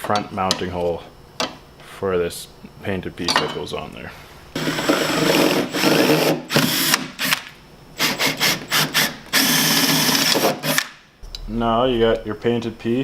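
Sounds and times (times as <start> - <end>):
power drill boring through metal: 4.6 - 7.4, 8.0 - 10.8.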